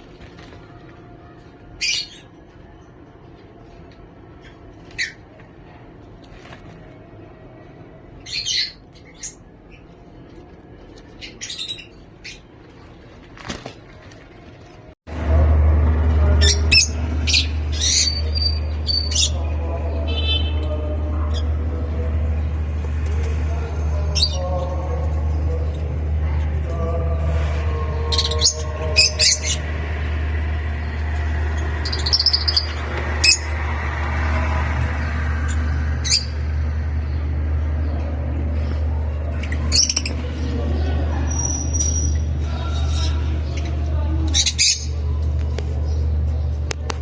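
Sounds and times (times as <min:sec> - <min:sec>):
lovebirds chirping and squawking: 0:01.8 - 0:02.4, 0:08.2 - 0:10.0, 0:11.0 - 0:12.6, 0:16.4 - 0:19.5, 0:28.1 - 0:29.8, 0:30.8 - 0:33.6, 0:35.0 - 0:47.0
steady low hum: 0:15.1 - 0:47.0.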